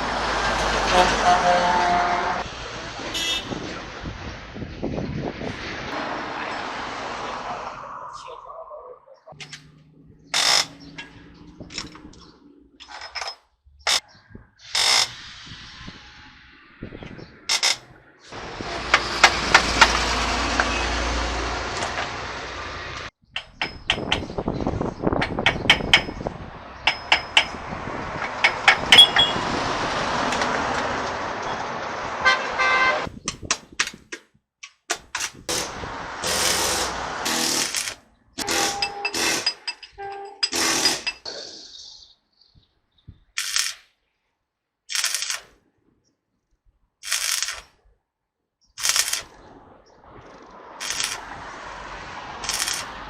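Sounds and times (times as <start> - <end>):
sharp tool bursts: 35.5 - 41.2, 52.4 - 53.0
metallic clinks and knocks: 38.6 - 41.2.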